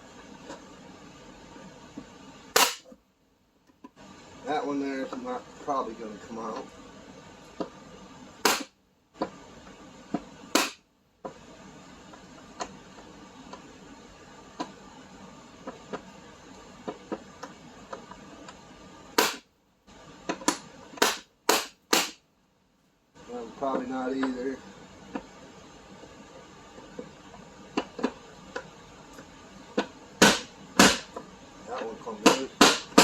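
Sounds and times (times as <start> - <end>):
hammer striking impact driver: 2.6 - 2.9, 8.4 - 8.7, 10.5 - 10.8, 19.2 - 19.4, 20.3 - 22.2, 29.8 - 31.2, 32.2 - 33.0.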